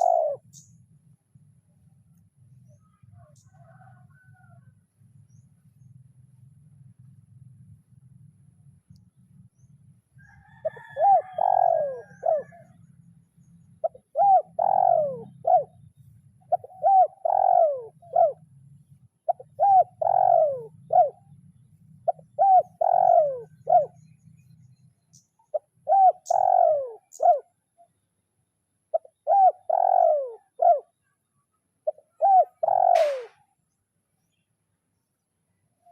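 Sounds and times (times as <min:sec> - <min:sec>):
dove cooing: 0:00.0 - 0:00.7, 0:10.3 - 0:13.0, 0:13.7 - 0:21.4, 0:22.0 - 0:24.2, 0:25.1 - 0:27.5, 0:28.9 - 0:31.0, 0:31.8 - 0:33.5.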